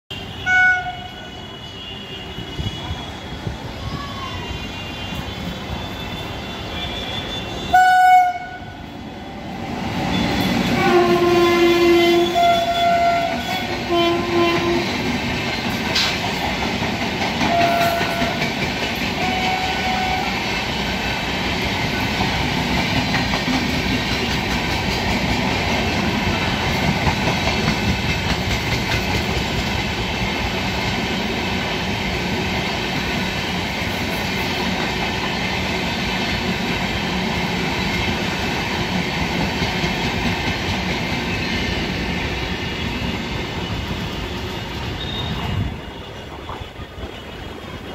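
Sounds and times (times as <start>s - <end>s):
locomotive horn: 0.1s - 2.9s, 4.8s - 8.8s, 10.1s - 15.0s, 17.4s - 18.4s, 19.2s - 20.4s.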